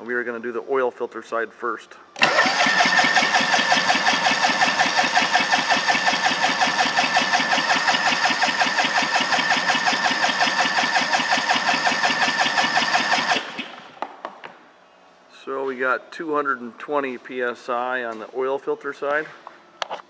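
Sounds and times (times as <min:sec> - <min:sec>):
engine cranking chug: 0:02.2 - 0:14.0
starter motor whine: 0:02.2 - 0:14.0.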